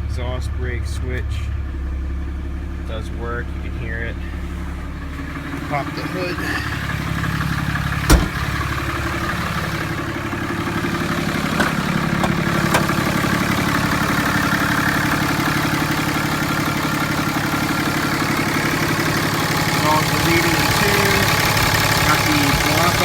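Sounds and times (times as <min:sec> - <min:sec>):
diesel engine idling: 0:00.0 - 0:23.0
sharp clunk: 0:08.1 - 0:08.6, 0:11.6 - 0:13.0.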